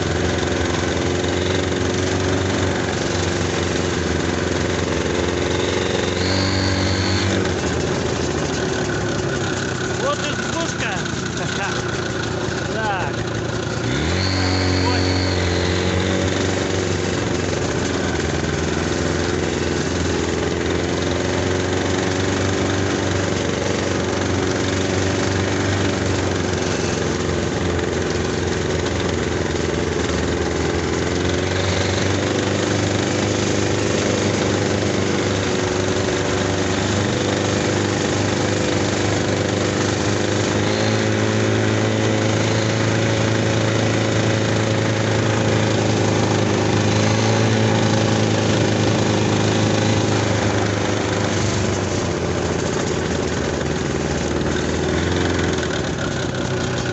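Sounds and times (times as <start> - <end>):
snowmobile engine running: 0.0 - 56.9.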